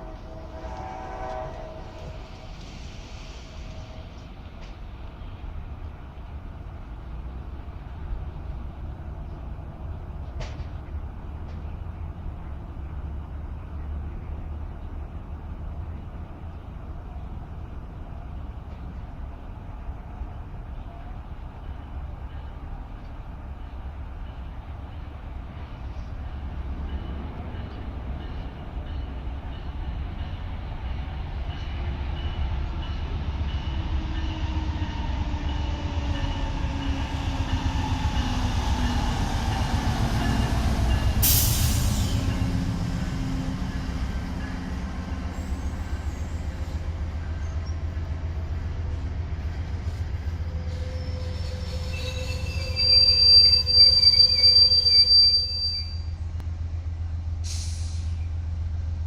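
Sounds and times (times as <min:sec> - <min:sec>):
train rumbling past: 0:00.0 - 0:59.0
steel wheel squeal: 0:50.5 - 0:56.2.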